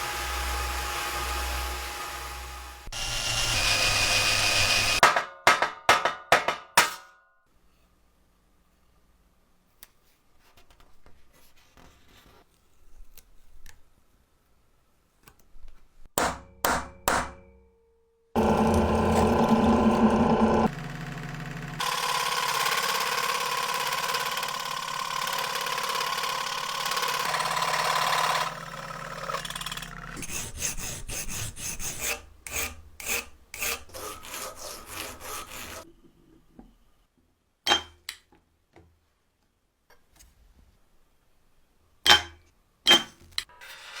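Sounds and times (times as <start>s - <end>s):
grinding or sanding noise: 18.4s - 20.7s, 33.6s - 35.9s
filing strokes: 30.2s - 35.9s.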